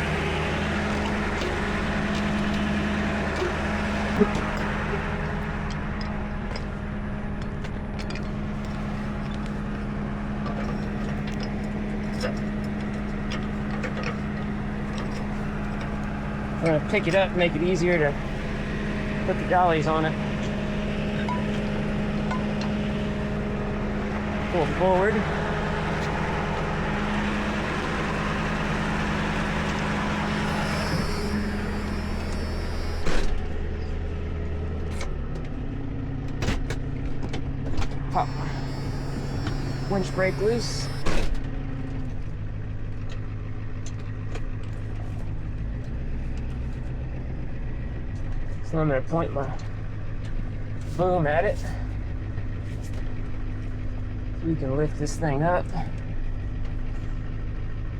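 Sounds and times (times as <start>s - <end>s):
truck engine idling: 0.0s - 57.9s.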